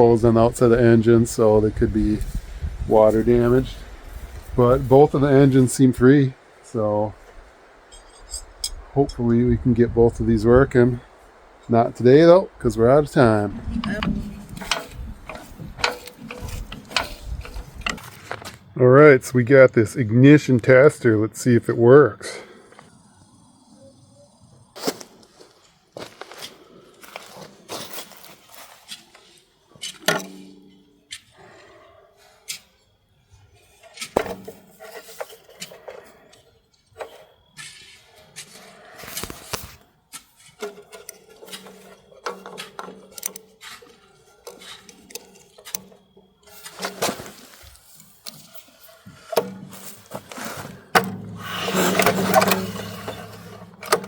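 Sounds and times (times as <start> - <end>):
metal tools clinking and scraping: 7.3 - 9.2, 12.6 - 18.6, 28.0 - 31.2, 37.0 - 54.0.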